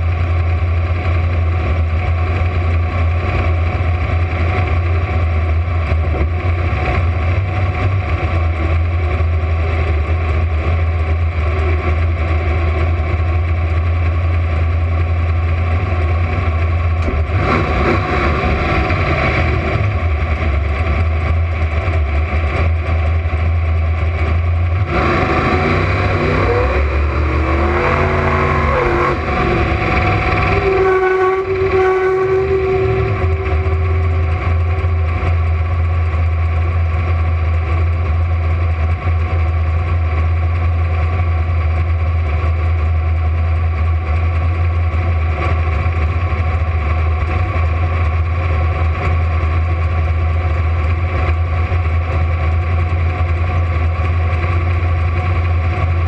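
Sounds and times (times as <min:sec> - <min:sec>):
car engine idling: 0:00.0 - 0:56.0
high-pitched whine: 0:24.2 - 0:36.8.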